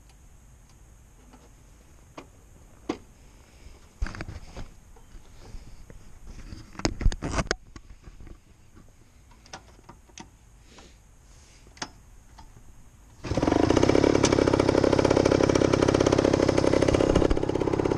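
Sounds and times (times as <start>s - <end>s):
two-stroke engine starting and idling: 13.2s - 17.9s.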